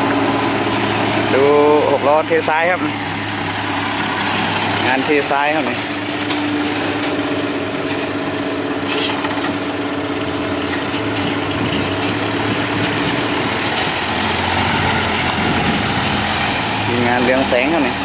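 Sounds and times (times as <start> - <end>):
diesel machinery running: 0.0 - 18.0
engine whine: 0.0 - 18.0.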